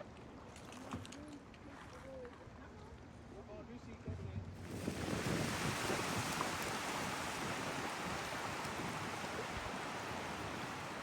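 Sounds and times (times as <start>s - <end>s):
lake water lapping: 4.6s - 11.0s.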